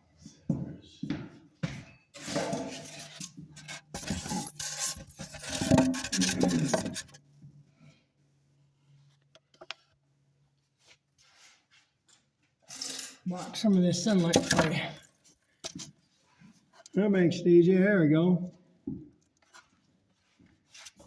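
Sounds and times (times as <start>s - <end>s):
rubbing and scraping: 2.2s - 7.2s, 12.8s - 15.9s.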